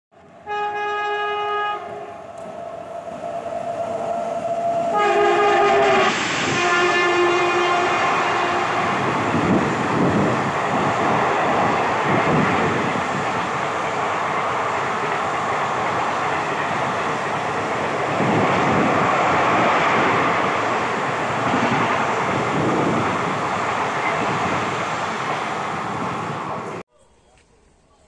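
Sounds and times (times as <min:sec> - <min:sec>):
locomotive horn blasts: 0:00.4 - 0:02.2, 0:04.9 - 0:09.4
train wheels rumbling and clattering: 0:01.8 - 0:26.8.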